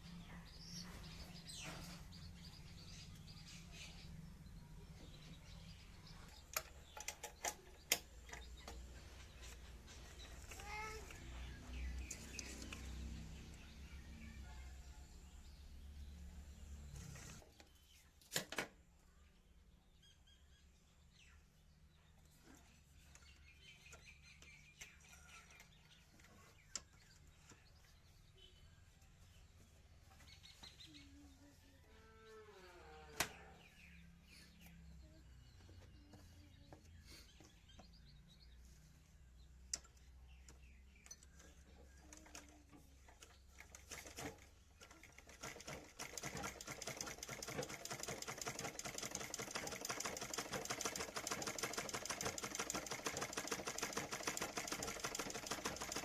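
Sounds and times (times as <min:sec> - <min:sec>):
bird chirps: 0:19.1 - 0:42.2
sewing machine clatter: 0:41.4 - 0:56.0.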